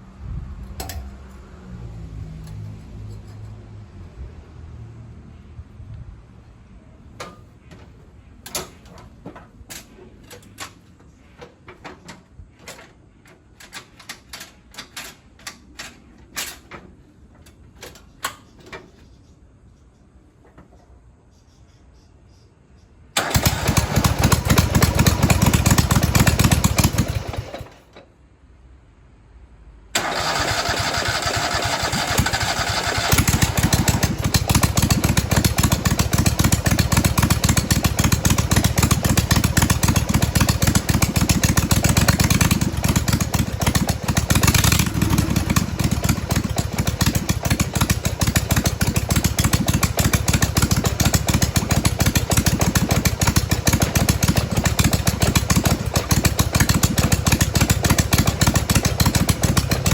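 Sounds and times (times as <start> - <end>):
lawnmower engine running: 23.2 - 28.0, 30.0 - 59.9.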